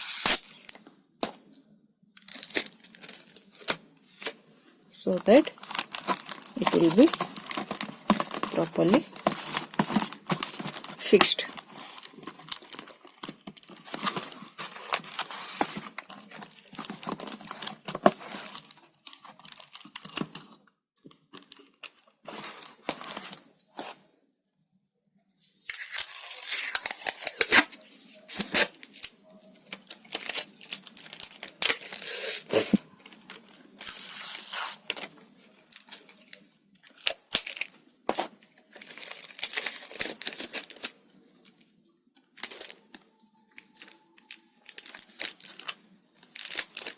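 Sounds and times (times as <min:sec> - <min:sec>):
tape crinkling: 0:00.0 - 0:00.8, 0:02.2 - 0:04.4, 0:05.2 - 0:20.5, 0:29.7 - 0:36.1, 0:36.9 - 0:40.9, 0:43.8 - 0:46.9.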